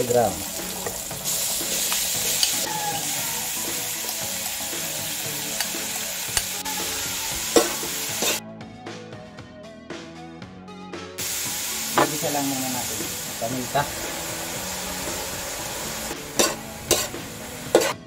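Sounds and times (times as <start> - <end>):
meat sizzling in a wok: 0.0 - 8.4, 11.2 - 18.0
quiet background music: 0.0 - 18.0
metal spatula scraping a pan: 16.3 - 18.0.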